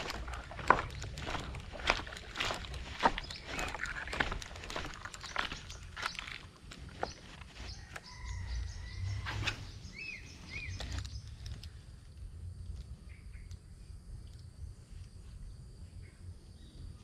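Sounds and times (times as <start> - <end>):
bird chirps: 7.0 - 11.6.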